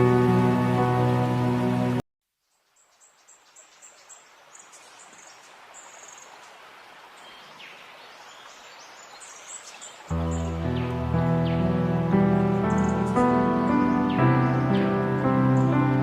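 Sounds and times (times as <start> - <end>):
birds chirping: 2.5 - 16.0.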